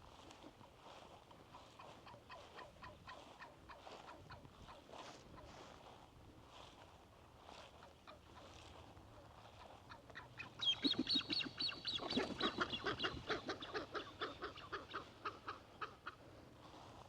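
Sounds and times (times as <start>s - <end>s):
waterfowl calling: 9.9s - 16.2s.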